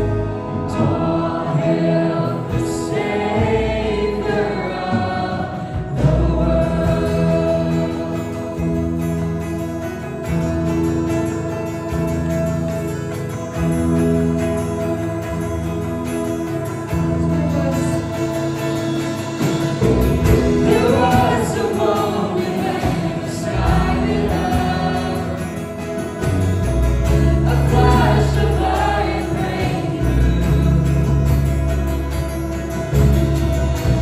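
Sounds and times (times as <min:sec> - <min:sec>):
voices singing: 0:00.0 - 0:09.5, 0:15.9 - 0:31.7
keyboard chords: 0:00.0 - 0:34.0
sustained low bass: 0:00.0 - 0:34.0.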